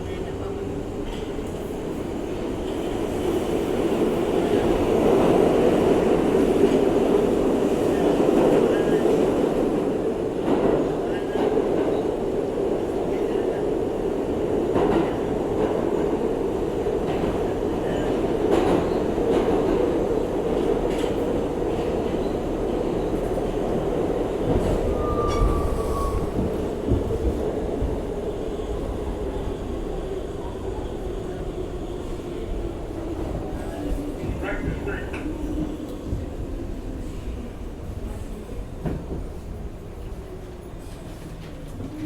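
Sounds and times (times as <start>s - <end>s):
train wheels rumbling on rail: 0.0s - 42.0s
wheel squeal: 24.9s - 26.4s.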